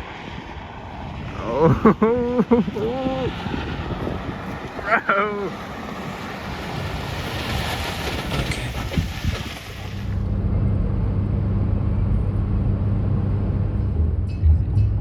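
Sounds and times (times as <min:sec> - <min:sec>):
road noise: 0:00.0 - 0:15.0
wind noise on microphone: 0:00.0 - 0:15.0
car engine drone inside cabin: 0:09.9 - 0:15.0.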